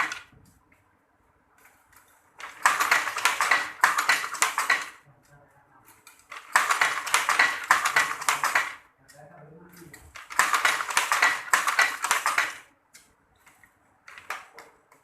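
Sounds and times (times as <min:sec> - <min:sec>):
wooden handloom clacking: 0:00.0 - 0:00.3, 0:02.4 - 0:05.0, 0:06.3 - 0:08.8, 0:10.1 - 0:12.7.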